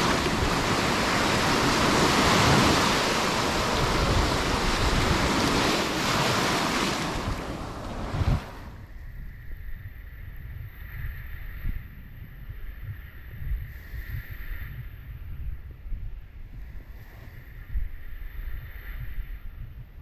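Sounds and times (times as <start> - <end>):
waves breaking on beach: 0.0 - 8.7
wind buffeting microphone: 0.0 - 20.0.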